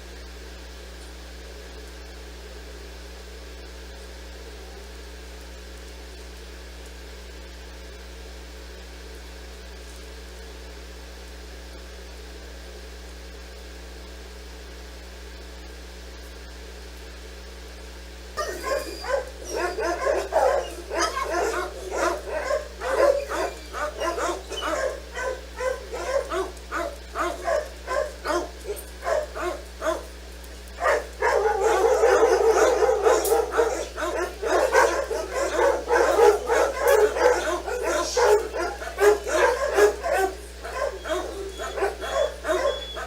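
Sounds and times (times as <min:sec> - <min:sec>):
dogs barking: 0:18.4 - 0:43.0.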